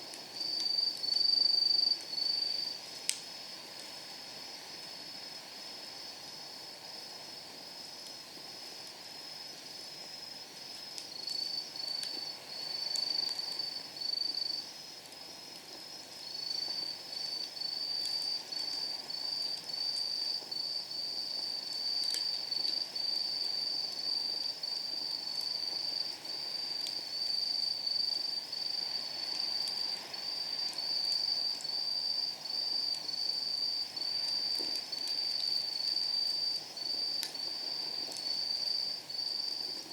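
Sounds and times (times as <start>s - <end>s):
crickets chirping: 0.0s - 39.9s
firewood crackling: 0.0s - 39.9s.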